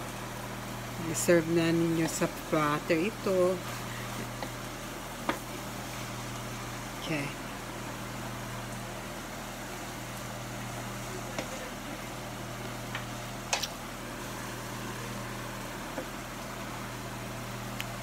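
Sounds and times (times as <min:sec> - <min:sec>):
beans sizzling in a skillet: 0:00.0 - 0:18.0
wooden spatula tapping pan: 0:05.2 - 0:05.5.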